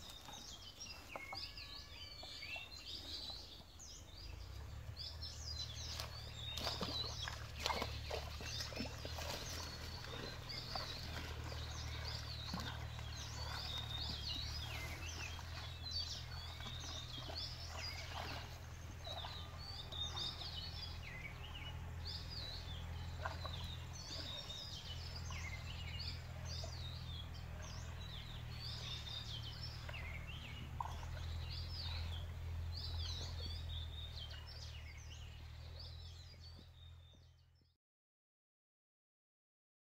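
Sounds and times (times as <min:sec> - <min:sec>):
small birds chirping: 0:00.0 - 0:37.7
steady low hum: 0:03.1 - 0:36.6.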